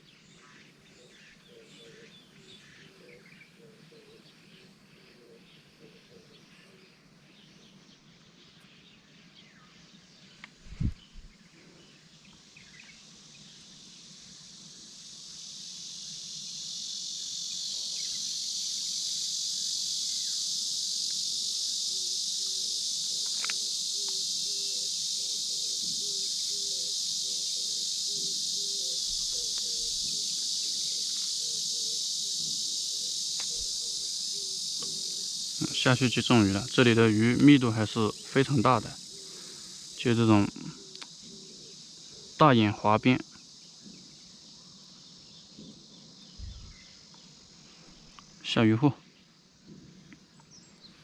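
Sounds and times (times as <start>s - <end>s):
faint bird chirps: 0.0s - 13.6s, 22.0s - 34.9s, 44.7s - 49.3s
cicadas buzzing: 0.0s - 51.0s.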